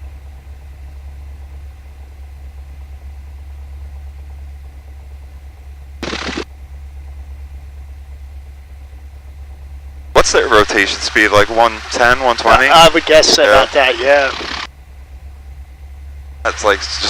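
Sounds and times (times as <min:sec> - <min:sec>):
piston aircraft engine idling: 0:00.0 - 0:17.0
crackling noise: 0:06.0 - 0:06.5, 0:10.5 - 0:14.7.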